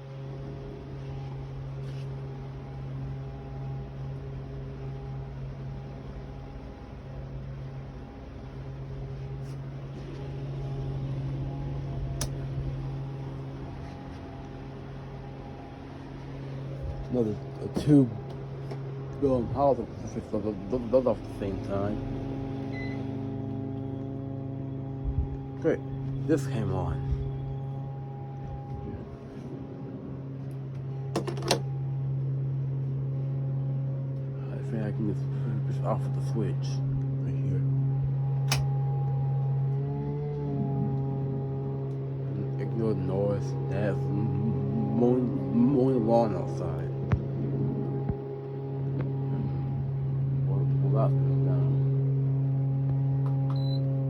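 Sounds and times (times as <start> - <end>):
electric fans humming: 0.0 - 54.0
fan switch clicks: 12.1 - 12.6, 38.4 - 38.8
sharp click: 38.5 - 38.7.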